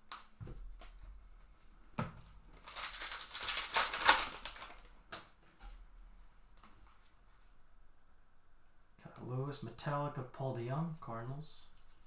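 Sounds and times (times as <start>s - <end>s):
wrapper crinkling and tearing: 2.6s - 5.3s.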